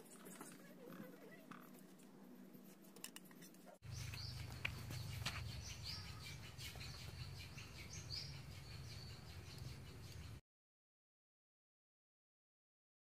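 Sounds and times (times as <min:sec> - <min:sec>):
birds chirping: 0:03.8 - 0:10.4.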